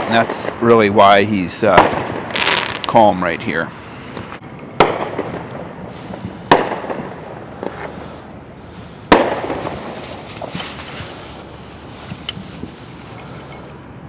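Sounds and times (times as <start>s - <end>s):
fireworks bangs with echo: 0.0s - 3.4s, 4.1s - 8.2s, 9.1s - 10.6s
small firework pops: 4.2s - 7.9s, 9.1s - 10.7s.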